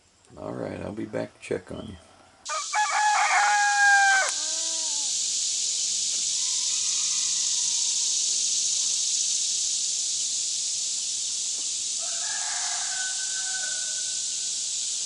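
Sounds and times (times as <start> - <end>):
high-pitched hiss: 0.0 - 15.0
rooster crowing: 2.5 - 5.2, 6.4 - 8.1, 12.0 - 14.5.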